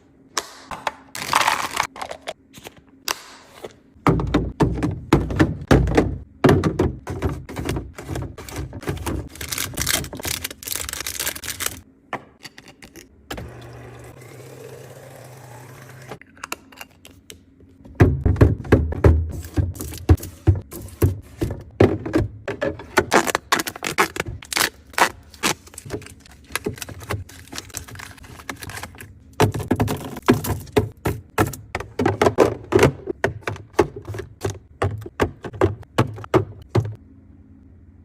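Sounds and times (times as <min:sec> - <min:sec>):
packaged items clicking and rattling: 0:07.1 - 0:11.8, 0:23.0 - 0:36.3.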